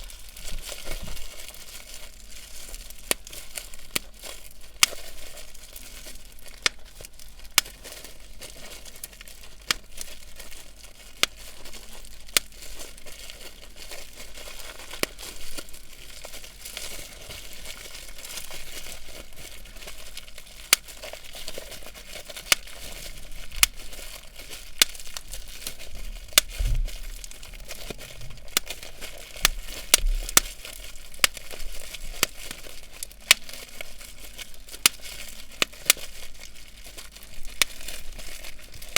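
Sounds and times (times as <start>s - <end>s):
bubble wrap crinkling: 0.0s - 38.9s
bubble wrap popping: 0.0s - 38.9s.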